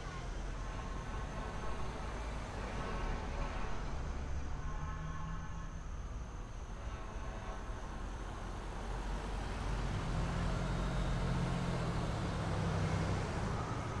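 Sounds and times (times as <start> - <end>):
fire engine motor rumbling: 6.2 - 14.0.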